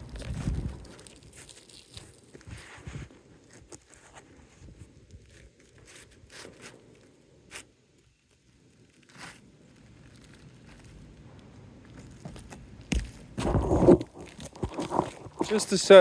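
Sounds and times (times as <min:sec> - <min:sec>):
shingle scraping and tearing: 0:00.0 - 0:07.7, 0:12.0 - 0:16.0.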